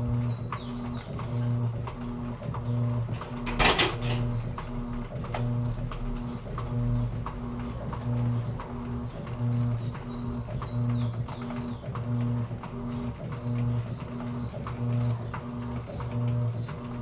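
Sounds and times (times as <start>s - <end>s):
washing machine motor pulsing hum: 0.0s - 17.0s.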